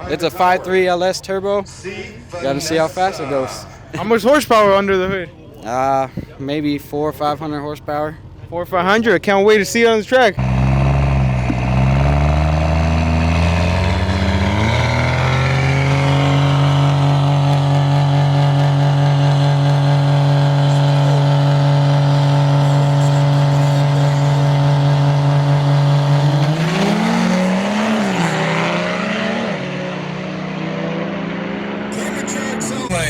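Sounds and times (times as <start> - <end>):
truck engine revving: 10.3 - 33.0.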